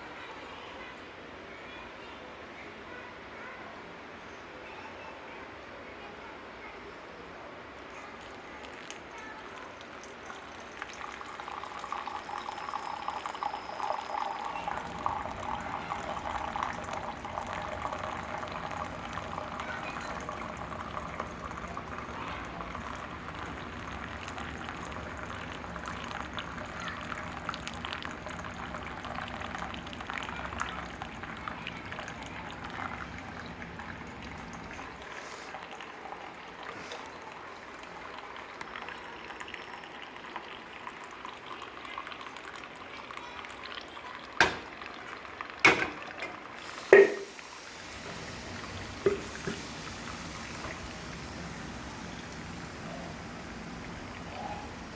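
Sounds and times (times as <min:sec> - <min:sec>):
water boiling and bubbling: 0:07.9 - 0:54.9.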